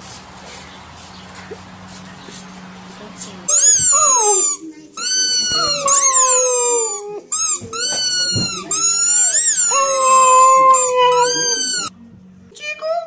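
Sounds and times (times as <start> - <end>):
dog yipping: 3.5 - 11.9
dog howling: 3.6 - 4.6, 5.2 - 11.9.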